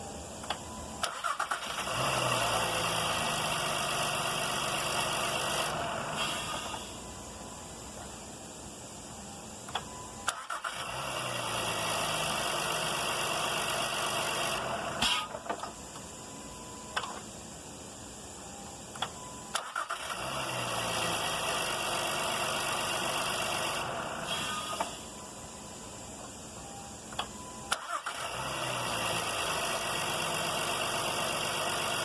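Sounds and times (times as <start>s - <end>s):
starter motor clicks: 0.5s - 2.0s.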